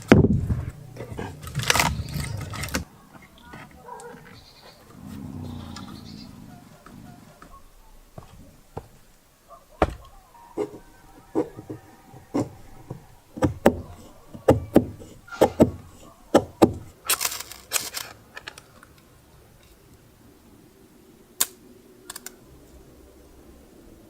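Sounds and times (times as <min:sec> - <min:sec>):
hissing scrape: 0:04.2 - 0:07.5
sharp knocks: 0:11.4 - 0:16.9.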